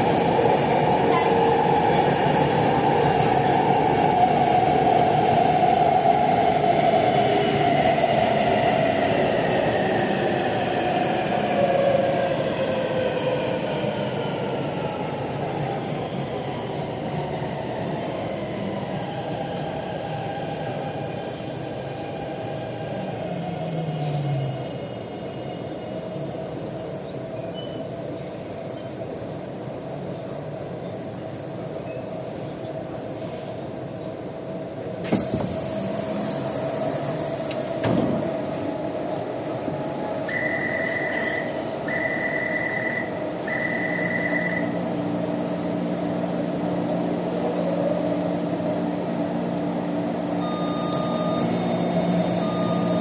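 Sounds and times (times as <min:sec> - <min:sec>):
train rumbling on rails: 0:00.0 - 0:53.0
hiss: 0:35.0 - 0:37.9
train motor whine: 0:35.0 - 0:38.2, 0:50.4 - 0:53.0.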